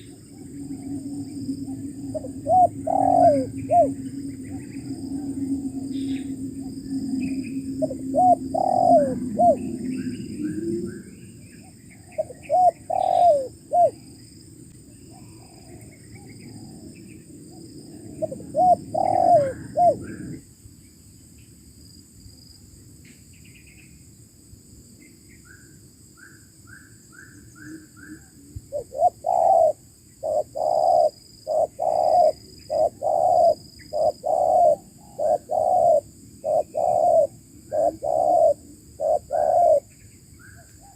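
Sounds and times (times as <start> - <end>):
doves cooing: 0.0 - 11.3, 12.0 - 14.1, 17.8 - 20.4, 28.1 - 39.9
low hum: 0.0 - 11.9
small birds chirping: 26.2 - 40.9.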